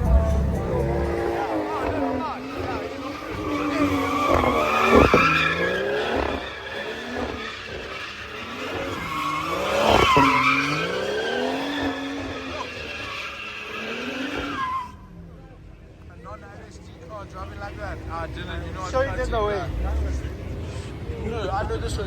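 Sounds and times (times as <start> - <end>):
tyres screeching: 0.0 - 15.0
car engine revving: 0.0 - 22.0.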